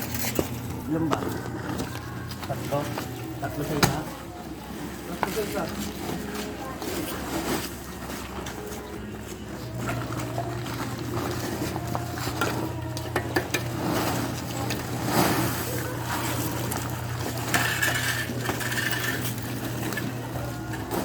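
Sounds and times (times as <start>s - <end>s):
metallic clinks and scraping: 17.4s - 20.2s.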